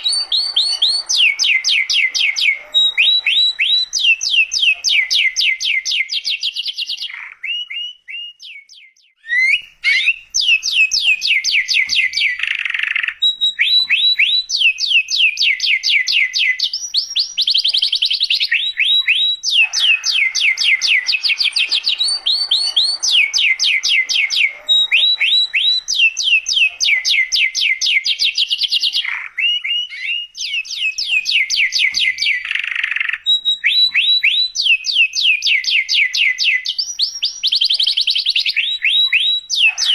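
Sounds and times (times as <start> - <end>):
canary singing rapid trills: 0.0 - 39.9.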